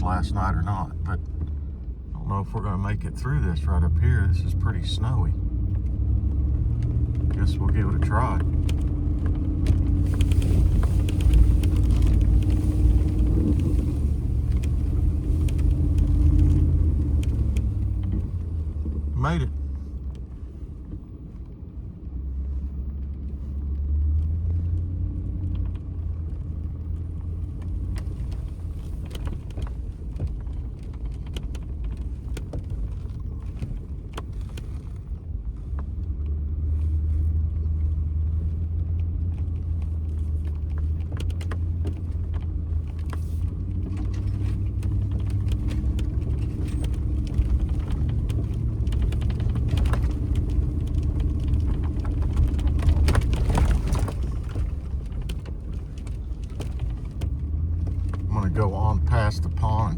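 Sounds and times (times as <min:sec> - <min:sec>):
pickup truck engine droning: 0:00.0 - 0:59.9
clicks and rattles: 0:38.9 - 0:58.3.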